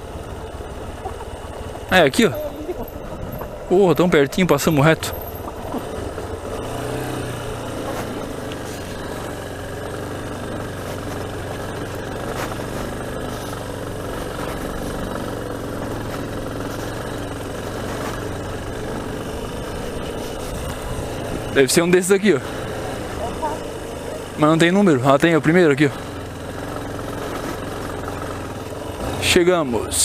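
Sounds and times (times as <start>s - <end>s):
motorcycle engine running: 0.0s - 30.0s
road and wind noise: 0.0s - 30.0s.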